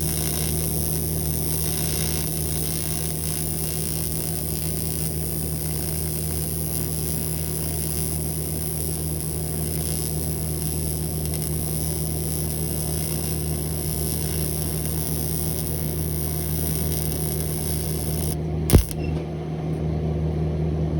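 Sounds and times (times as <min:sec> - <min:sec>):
arc hiss: 0:00.0 - 0:19.0
welder arc buzzing: 0:00.0 - 0:19.1
sharp click: 0:18.7 - 0:19.2.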